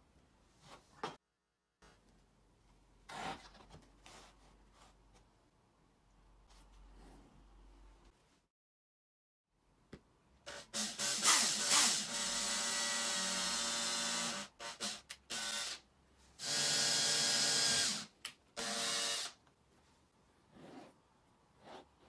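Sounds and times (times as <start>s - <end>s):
drill motor whining: 10.5s - 15.8s, 16.4s - 19.4s.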